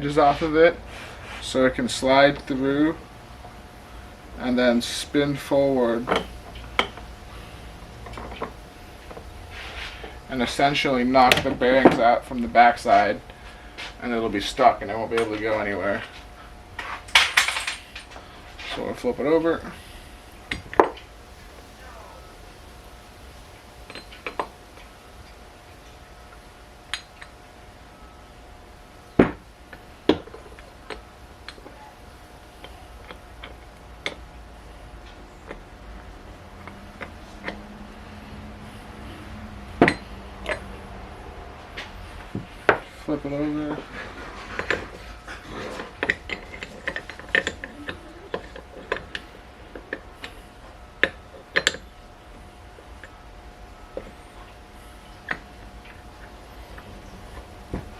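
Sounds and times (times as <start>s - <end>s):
metal parts clinking: 17.0s - 18.8s, 45.8s - 49.3s.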